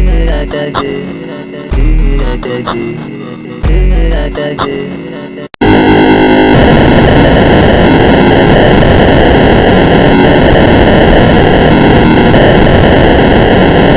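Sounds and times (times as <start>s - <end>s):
harsh distorted static noise: 5.6s - 13.9s.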